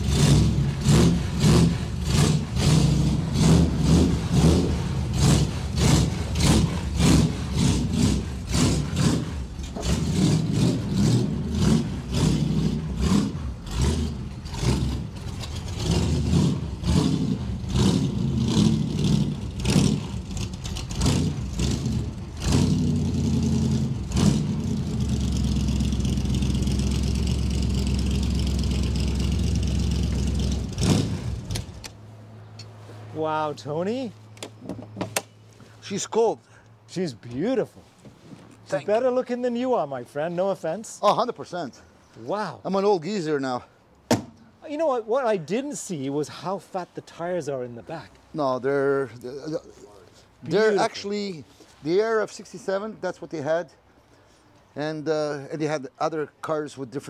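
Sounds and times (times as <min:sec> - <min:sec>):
car engine idling: 0:00.0 - 0:31.9.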